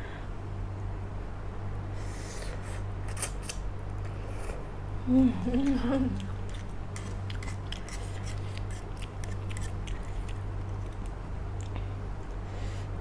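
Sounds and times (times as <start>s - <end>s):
person chewing noodles: 5.6s - 12.5s.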